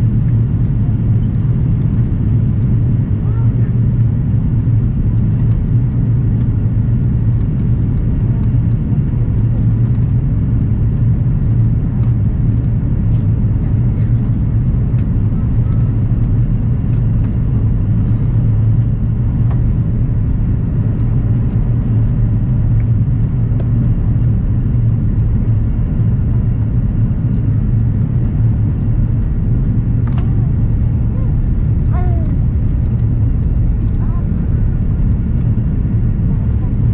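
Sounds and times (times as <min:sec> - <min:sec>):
airliner engine and airflow rumble: 0:00.0 - 0:36.9.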